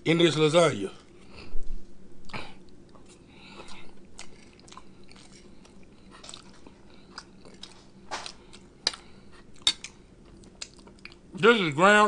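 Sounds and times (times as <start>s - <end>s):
man chewing with wet smacks: 2.2s - 11.4s.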